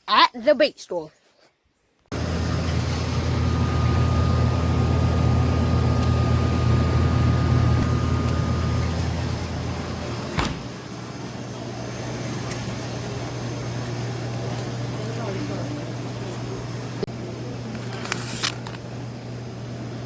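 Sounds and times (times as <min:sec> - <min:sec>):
faint steady whine: 0:02.2 - 0:11.8.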